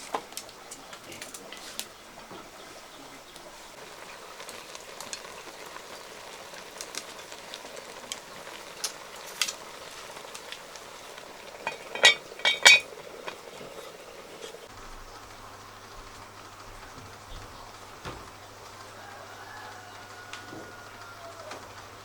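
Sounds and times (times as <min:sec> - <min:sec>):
food sizzling in a pan: 0:02.7 - 0:22.0
utensil clinking against pan: 0:11.4 - 0:14.6.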